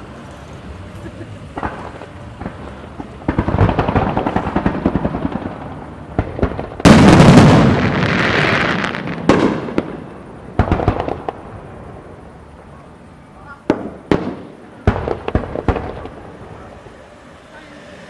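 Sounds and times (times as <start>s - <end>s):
fireworks crackling: 0.0s - 18.0s
fireworks rumble: 0.0s - 18.0s
loud fireworks bang: 1.5s - 12.1s, 13.6s - 16.8s.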